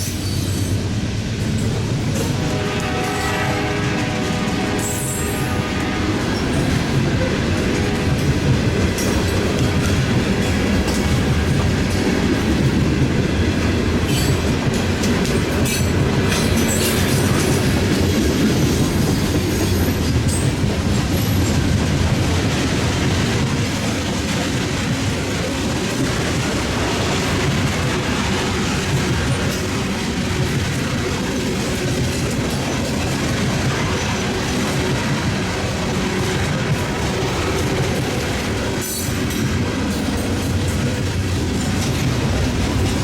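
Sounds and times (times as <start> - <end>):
train wheels screeching: 0.0 - 0.8, 1.5 - 12.6, 15.6 - 21.7
freight train wheels clacking: 0.0 - 43.0.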